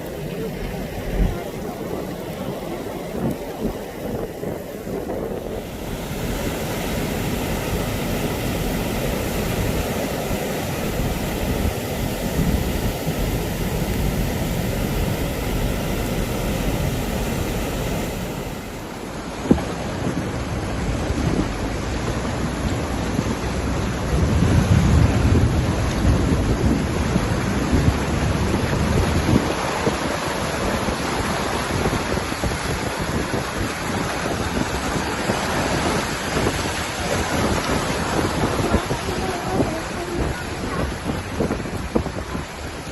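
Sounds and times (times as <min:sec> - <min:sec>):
deep rumble: 0:00.0 - 0:22.1
heavy rain: 0:00.0 - 0:42.9
wind buffeting microphone: 0:00.0 - 0:42.9.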